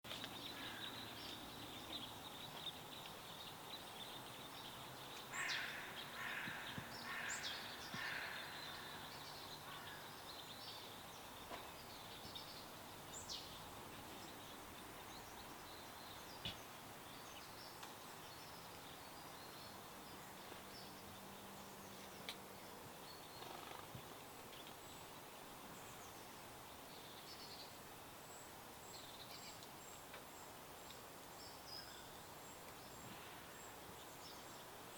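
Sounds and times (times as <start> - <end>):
birds chirping and calling: 0.1 - 21.0
steady background hiss: 0.1 - 34.9.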